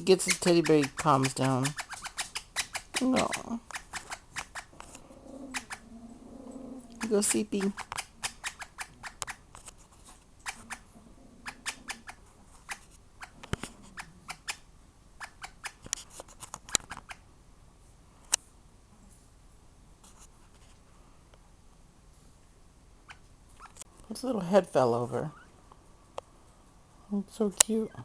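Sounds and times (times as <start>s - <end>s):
light scratches: 0.0s - 5.8s, 6.9s - 14.6s, 15.2s - 17.2s, 20.0s - 20.8s
sharp irregular clicks: 0.2s - 5.8s, 6.9s - 9.8s, 11.5s - 14.6s, 15.2s - 17.2s.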